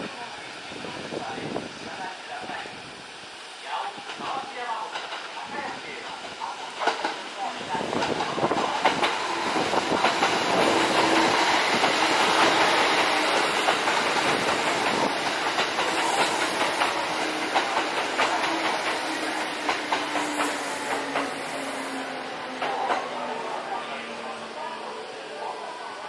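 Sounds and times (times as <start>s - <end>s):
electric train rumbling past: 0.1s - 26.0s
wheels clacking over rail joints: 6.0s - 21.4s.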